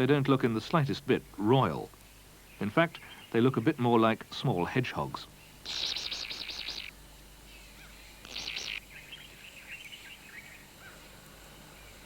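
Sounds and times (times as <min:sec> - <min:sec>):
high buzzy nestling calls: 0:05.2 - 0:07.0, 0:07.6 - 0:11.1.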